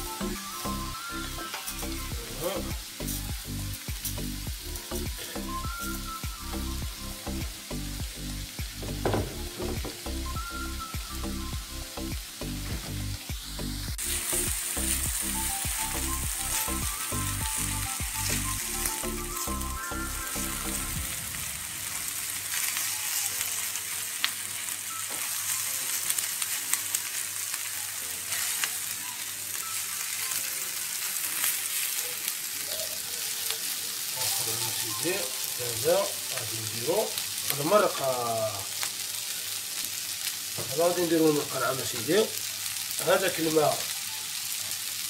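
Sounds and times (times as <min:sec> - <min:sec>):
background music with steady beat: 0:00.0 - 0:22.5
rice sizzling in hot oil: 0:00.0 - 0:45.0.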